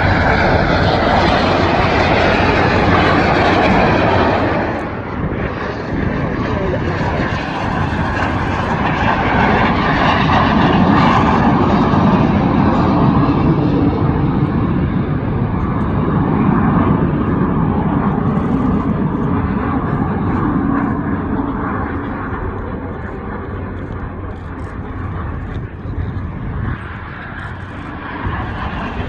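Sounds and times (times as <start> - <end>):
jet roar passing: 0.0 - 29.0.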